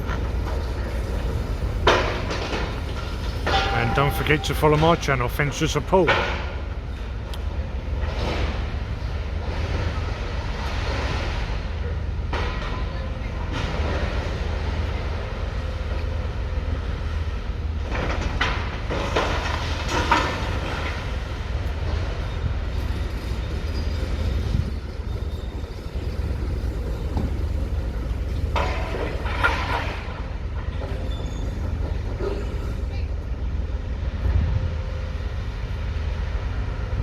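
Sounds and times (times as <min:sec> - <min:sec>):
demolition excavator working: 0:00.0 - 0:37.0
debris crunching and clattering: 0:17.8 - 0:22.1, 0:25.2 - 0:32.1
steady low rumble: 0:31.6 - 0:37.0.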